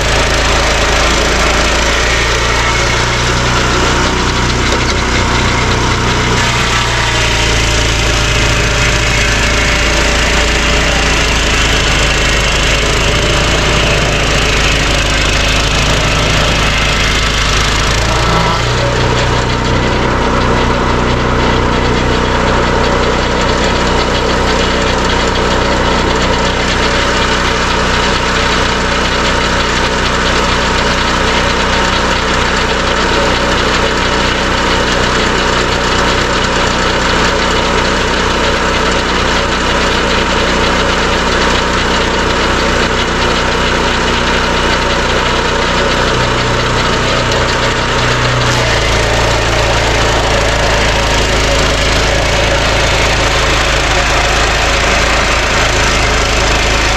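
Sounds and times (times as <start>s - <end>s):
sawmill engine running: 0.0s - 56.9s.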